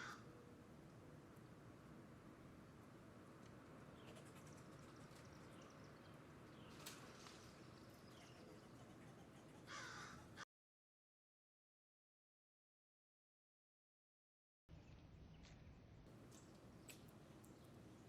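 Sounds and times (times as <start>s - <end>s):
low steady background noise: 0.0s - 10.4s, 14.7s - 18.0s.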